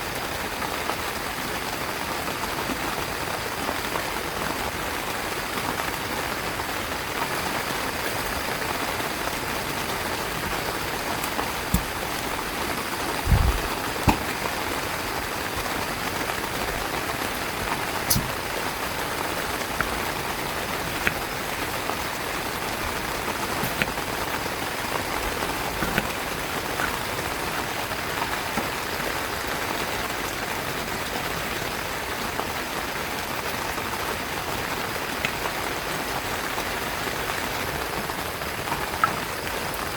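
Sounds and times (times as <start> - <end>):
heavy rain on a tent: 0.0 - 39.9
low thump: 13.3 - 14.4.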